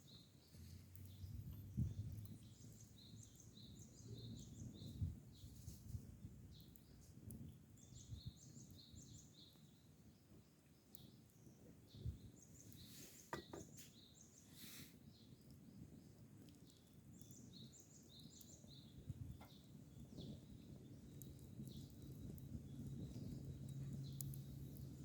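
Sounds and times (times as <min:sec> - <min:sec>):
low outdoor background noise: 0:00.0 - 0:25.0
small birds chirping: 0:00.0 - 0:25.0
soft knocks: 0:13.3 - 0:13.7.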